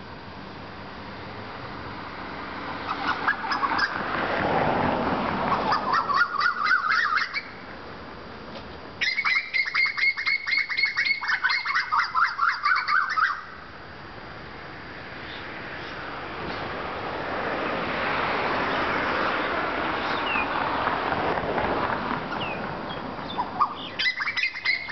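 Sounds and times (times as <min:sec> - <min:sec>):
songbird chattering song: 0:02.9 - 0:04.0, 0:05.5 - 0:07.6, 0:09.0 - 0:13.6, 0:15.2 - 0:16.6, 0:20.0 - 0:20.6, 0:22.3 - 0:24.9.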